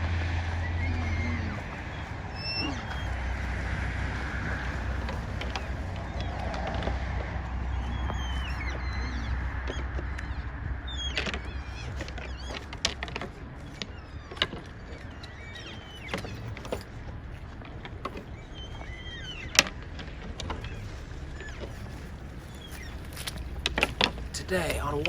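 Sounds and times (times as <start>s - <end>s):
elk whistling calls: 0.0s - 16.7s
vehicle engine hum: 0.0s - 25.0s
antlers clacking together: 21.6s - 25.0s.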